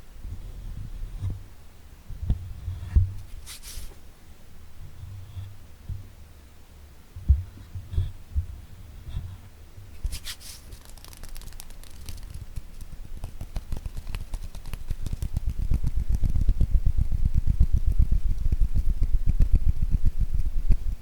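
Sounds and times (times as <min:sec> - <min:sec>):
brief rustle: 0:03.2 - 0:04.0, 0:09.9 - 0:15.5
hand tapping: 0:10.8 - 0:20.4.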